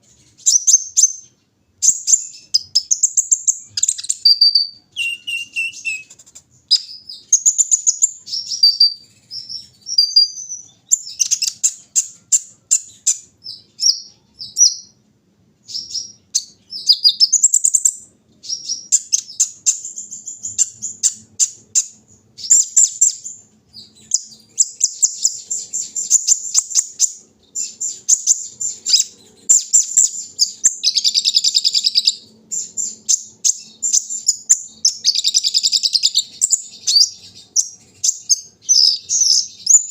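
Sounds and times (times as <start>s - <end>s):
sunbird singing chirps and trills: 0.0s - 39.9s.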